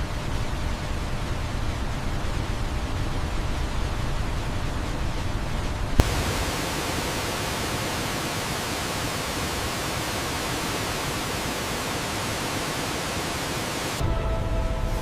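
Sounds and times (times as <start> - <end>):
waterfall rushing hiss: 6.0 - 14.0.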